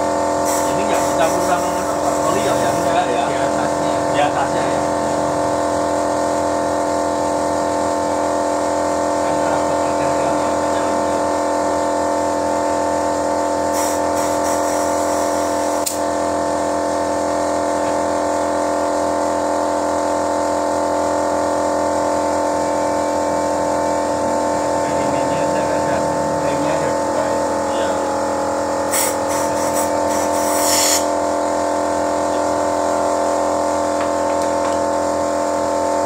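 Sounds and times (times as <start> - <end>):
car engine droning: 22.6 - 28.8.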